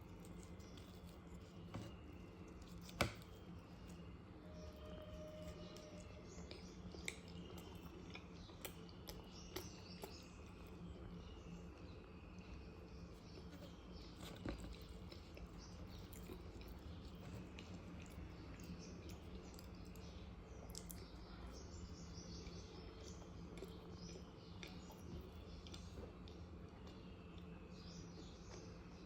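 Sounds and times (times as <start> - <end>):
low steady hum: 0.0 - 29.0
person chewing: 13.4 - 20.0.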